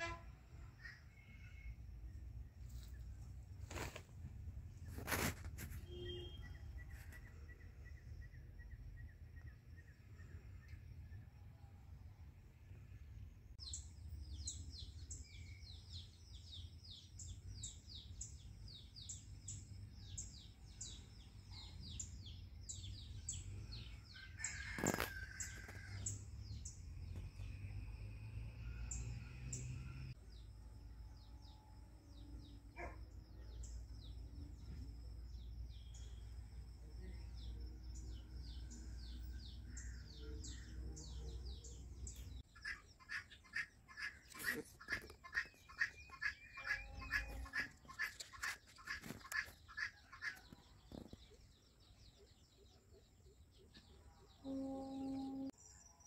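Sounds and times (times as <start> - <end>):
small birds chirping: 32.2 - 56.0.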